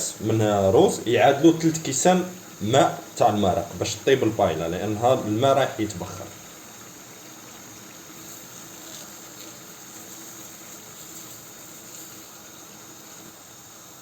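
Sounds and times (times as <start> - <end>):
seafood rice simmering in a pan: 0.0 - 14.0.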